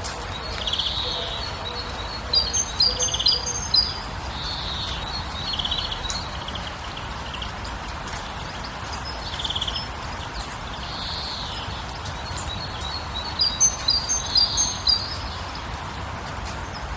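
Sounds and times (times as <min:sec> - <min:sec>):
outdoor ambient hiss: 0:00.0 - 0:16.9
small birds chirping: 0:00.2 - 0:16.9.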